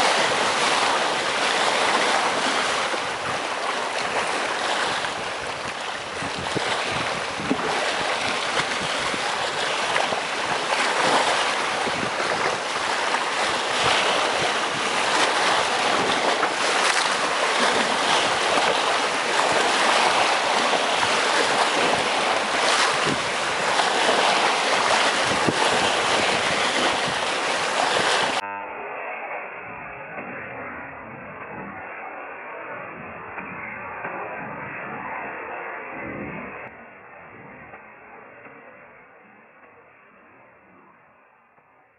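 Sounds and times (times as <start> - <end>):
waves washing against rocks: 0.0 - 28.4.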